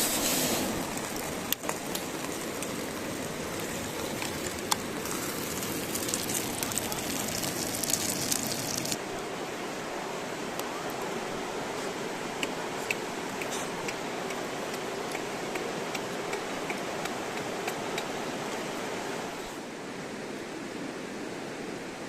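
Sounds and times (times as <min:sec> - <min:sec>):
campfire crackling: 0:00.0 - 0:09.2
river rushing: 0:00.0 - 0:22.0.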